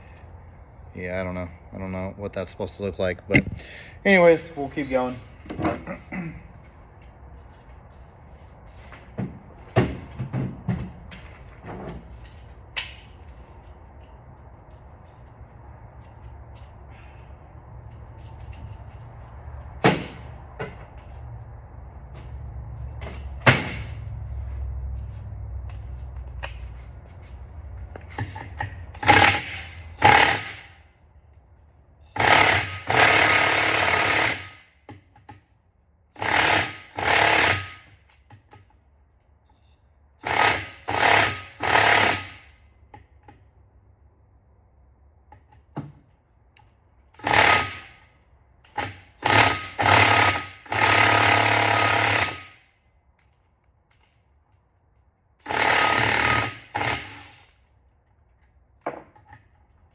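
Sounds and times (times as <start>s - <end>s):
impact wrench bursts: 28.1s - 30.9s, 32.1s - 34.9s, 36.1s - 38.0s, 40.2s - 42.6s, 47.2s - 48.1s, 48.7s - 52.7s, 55.4s - 57.6s.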